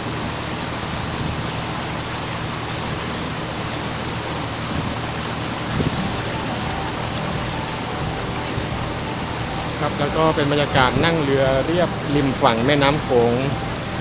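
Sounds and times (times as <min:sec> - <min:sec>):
boat engine running: 0:00.0 - 0:14.0
water rushing: 0:00.0 - 0:14.0
wind noise: 0:04.7 - 0:09.5.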